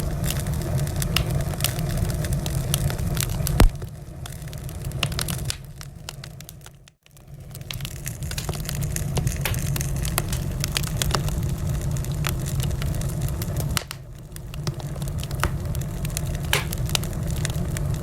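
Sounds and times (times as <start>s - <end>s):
low rumble of burning: 0.0s - 18.0s
wood fire crackling: 0.0s - 18.0s
logs popping and snapping: 1.0s - 1.7s, 5.0s - 5.8s, 7.6s - 11.4s, 13.7s - 17.6s.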